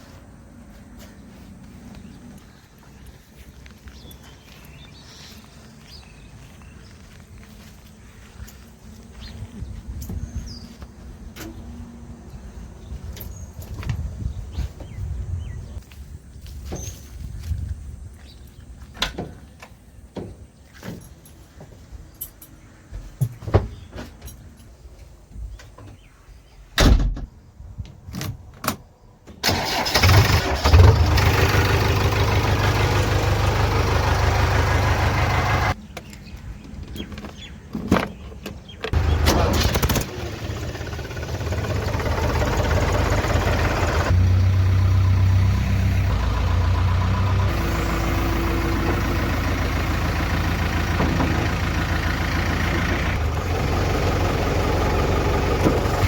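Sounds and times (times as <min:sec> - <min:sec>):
diesel engine starting and idling: 0:29.4 - 0:35.8, 0:38.9 - 0:56.0.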